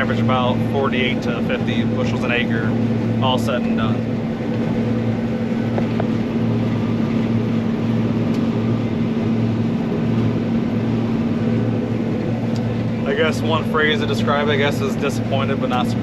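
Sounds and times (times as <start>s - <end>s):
combine harvester engine hum: 0.0s - 16.0s.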